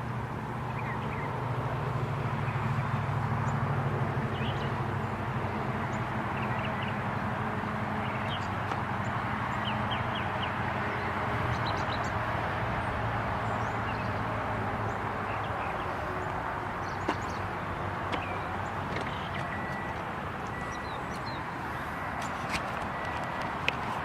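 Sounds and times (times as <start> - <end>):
birds chirping: 0.6 - 1.4, 4.3 - 5.2, 5.8 - 12.2, 12.8 - 23.6.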